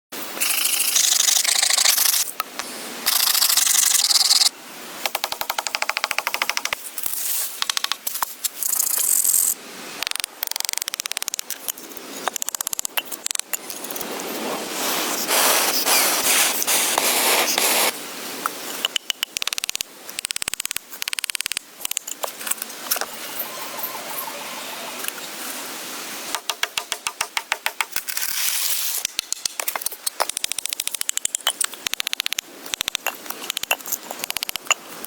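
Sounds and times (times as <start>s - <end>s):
fast even clicking: 10.0s - 11.6s, 18.8s - 22.2s, 29.1s - 34.8s
scraping and rubbing: 13.7s - 17.9s.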